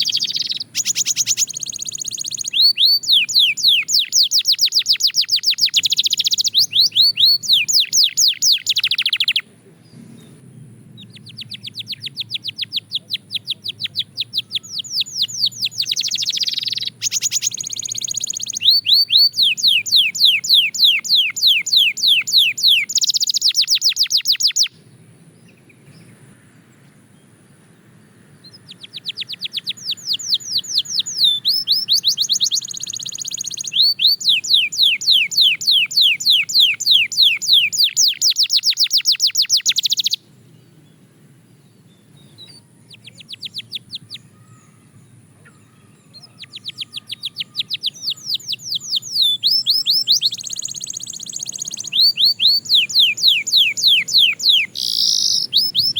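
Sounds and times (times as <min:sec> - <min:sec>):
canary singing in trills: 0:00.0 - 0:10.4, 0:11.0 - 0:26.2, 0:28.3 - 0:40.9, 0:41.5 - 0:55.9.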